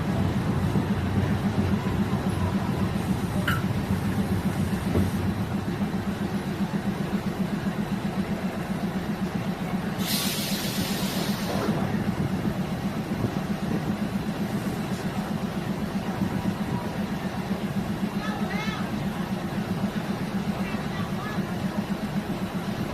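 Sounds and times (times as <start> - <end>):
railcar engine drone: 0.0 - 22.9
short hiss: 10.0 - 11.7.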